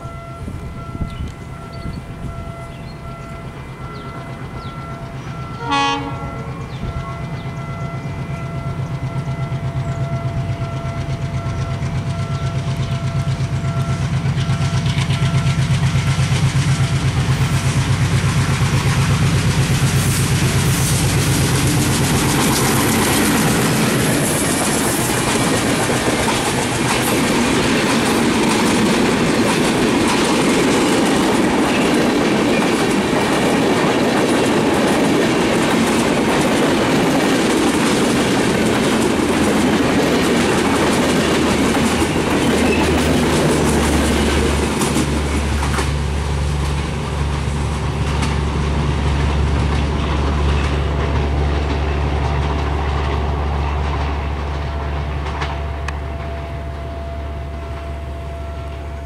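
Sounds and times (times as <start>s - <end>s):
train wheels clattering over rail joints: 9.8s - 56.4s
rushing noise: 15.7s - 33.6s.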